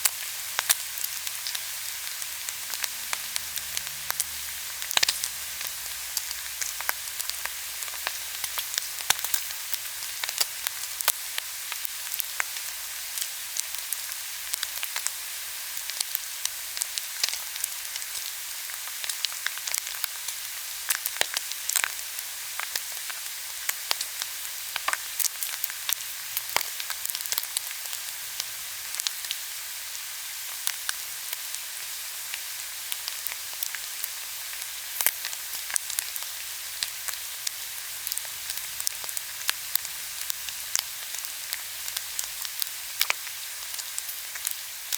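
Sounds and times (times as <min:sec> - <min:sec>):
fat crackling and popping: 0:00.0 - 0:12.6
pork sizzling on a grill: 0:00.0 - 0:44.9.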